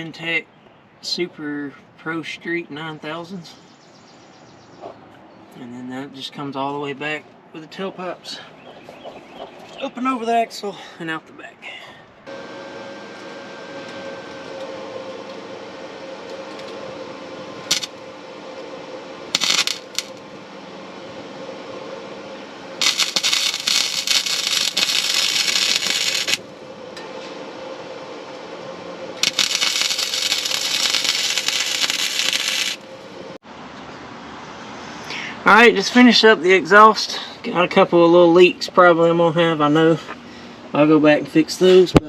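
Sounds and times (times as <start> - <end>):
steady background hum: 0.0 - 42.0
welding crackle: 17.6 - 18.6, 19.3 - 20.2, 22.8 - 26.5, 29.2 - 32.8.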